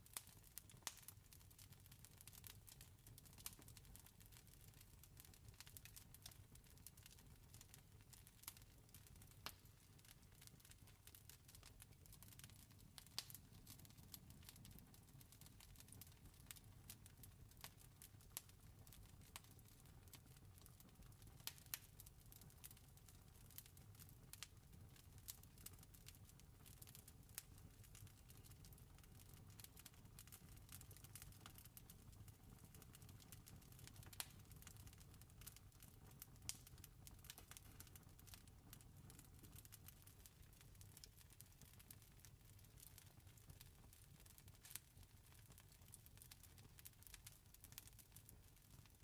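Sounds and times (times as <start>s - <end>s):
campfire crackling: 0.1s - 1.1s, 8.4s - 9.6s, 10.4s - 17.8s, 18.4s - 20.2s, 20.8s - 22.8s, 24.3s - 24.5s, 26.7s - 40.1s, 42.7s - 44.8s, 46.2s - 48.8s.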